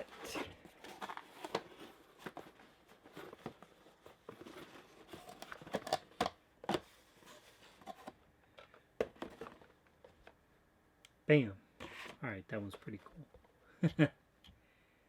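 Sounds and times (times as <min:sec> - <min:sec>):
packaging crinkling and rustling: 0:00.0 - 0:08.2.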